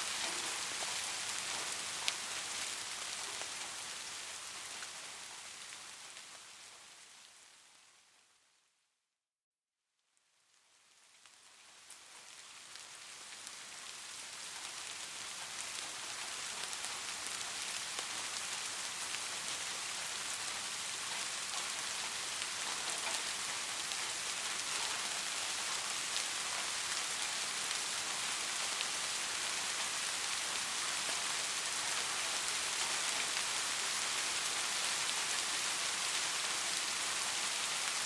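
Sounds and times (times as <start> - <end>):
steady rain falling: 0.0 - 8.8, 10.0 - 38.0
raindrop ticks: 0.1 - 3.9, 20.7 - 29.8.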